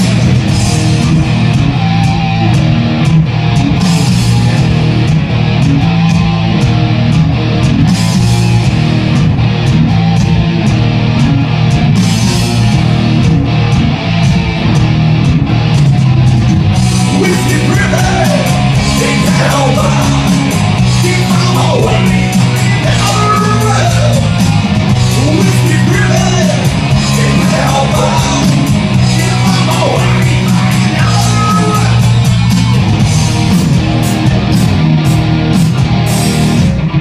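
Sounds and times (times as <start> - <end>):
rock band playing loud: 0.0 - 37.0
person's voice over band: 17.0 - 32.3.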